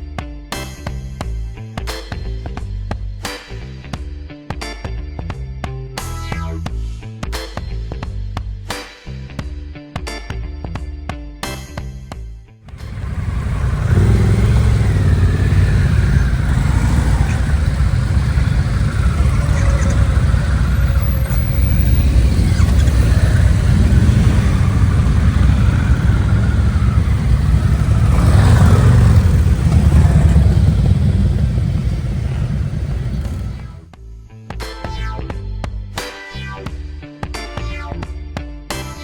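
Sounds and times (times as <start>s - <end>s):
motorcycle engine running: 12.7s - 33.9s.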